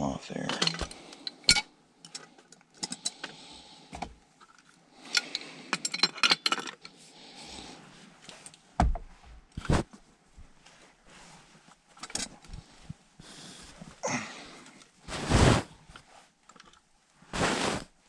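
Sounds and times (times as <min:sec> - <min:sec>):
metal wrenches clinking on pipe: 0:00.4 - 0:03.4, 0:04.4 - 0:06.9.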